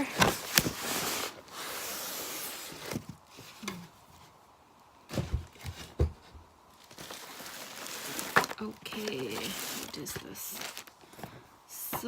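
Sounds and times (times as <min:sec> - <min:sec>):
cardboard box rustling: 0:00.0 - 0:04.0, 0:06.8 - 0:11.4
light knocks and thumps: 0:05.1 - 0:06.5.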